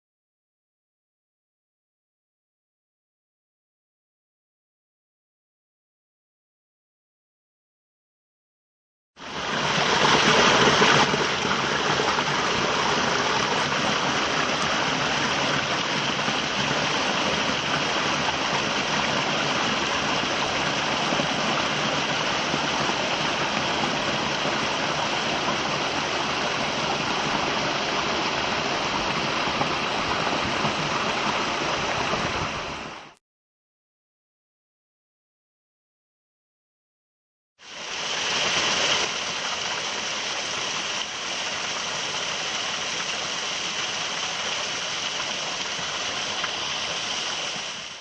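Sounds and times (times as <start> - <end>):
stream rushing over rocks: 9.2 - 33.2, 37.6 - 48.0.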